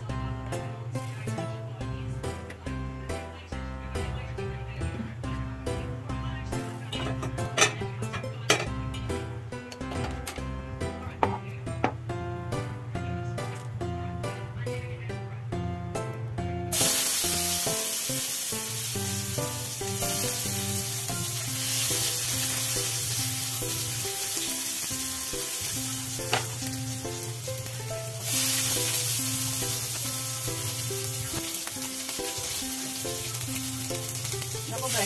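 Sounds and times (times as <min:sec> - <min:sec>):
background music: 0:00.0 - 0:35.0
garlic and onion frying in oil: 0:16.7 - 0:35.0.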